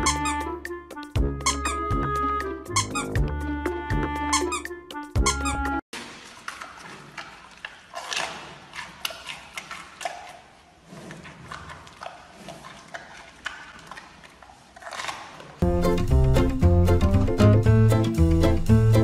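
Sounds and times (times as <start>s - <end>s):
panda chewing bamboo: 6.1s - 15.6s.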